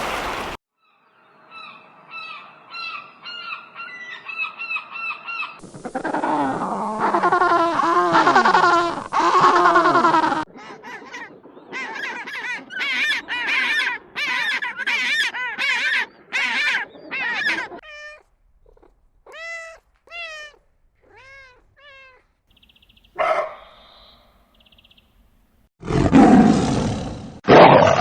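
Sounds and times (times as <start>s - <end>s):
animal calls: 2.1s - 22.2s.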